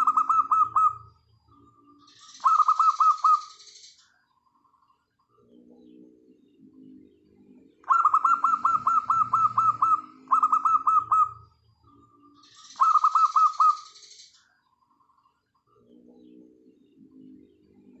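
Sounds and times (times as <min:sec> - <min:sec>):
doves cooing: 0:00.0 - 0:03.6, 0:07.5 - 0:14.0
bird rapid down-slurred notes: 0:07.8 - 0:12.1.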